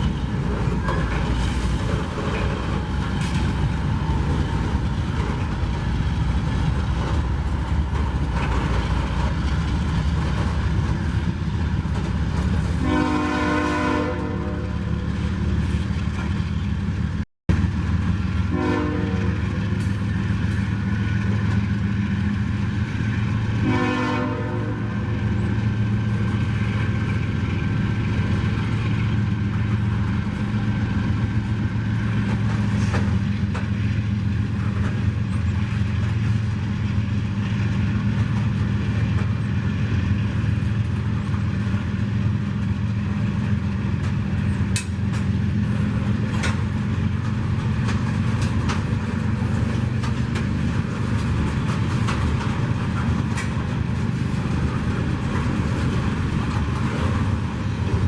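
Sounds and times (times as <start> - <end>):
train wheels clicking and clanking: 0.0 - 13.5, 14.2 - 18.5, 19.1 - 23.7, 24.9 - 58.0
diesel locomotive humming: 0.0 - 58.0
train horn: 12.8 - 14.9, 18.5 - 19.5, 23.6 - 25.0.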